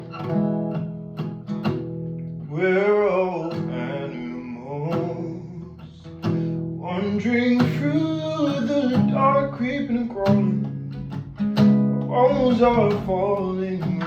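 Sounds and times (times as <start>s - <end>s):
acoustic guitar picking: 0.0s - 14.0s
person singing wordless line: 2.5s - 11.0s, 12.1s - 14.0s.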